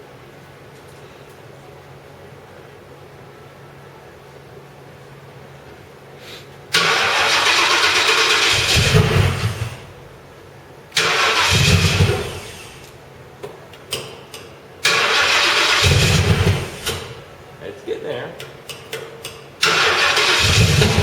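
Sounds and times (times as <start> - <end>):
car engine cranking on starter: 6.7 - 10.0, 10.9 - 12.9, 14.8 - 17.3, 19.6 - 21.0.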